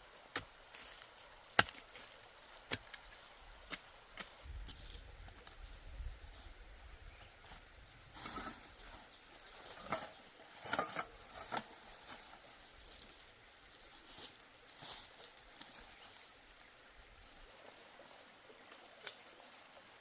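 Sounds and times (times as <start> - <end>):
rustling: 7.4 - 16.3.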